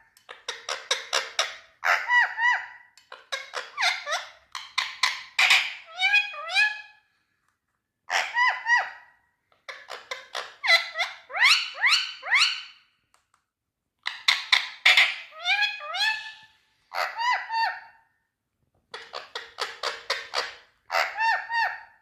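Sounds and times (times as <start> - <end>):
parakeet calling shrilly: 9.8 - 12.8, 14.2 - 17.9.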